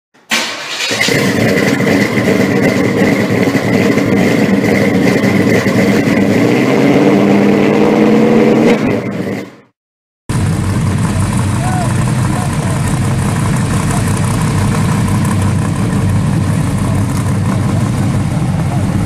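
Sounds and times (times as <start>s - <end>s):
car engine running: 1.0s - 7.6s, 10.3s - 19.0s
steady high whine: 10.3s - 19.0s.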